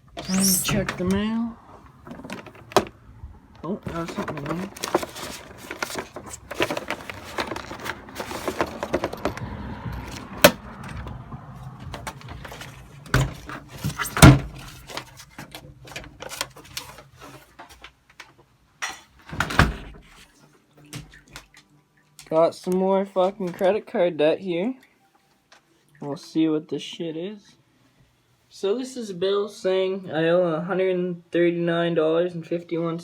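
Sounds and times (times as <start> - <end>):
mail rustling and clicks: 3.9 - 9.2.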